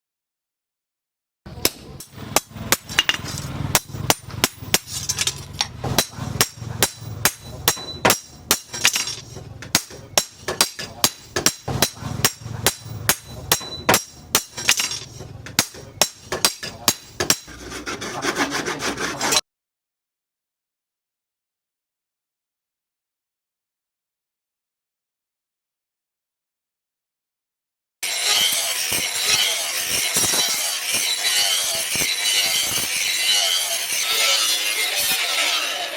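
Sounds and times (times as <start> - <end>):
hand tool scraping knife: 2.7 - 19.4, 28.0 - 35.9.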